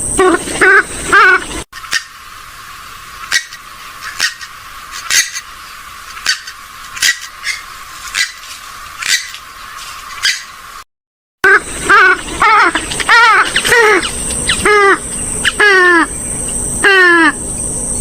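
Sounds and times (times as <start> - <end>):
steady hiss: 0.0 - 10.8.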